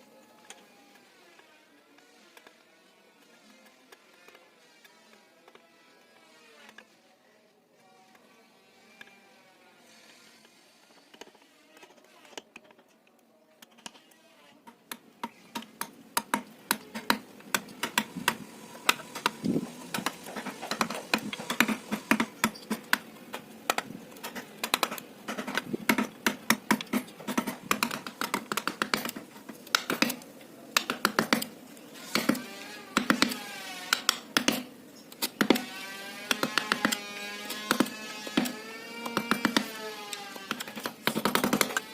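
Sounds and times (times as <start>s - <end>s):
mallet tapping chisel into wood: 33.0s - 34.7s.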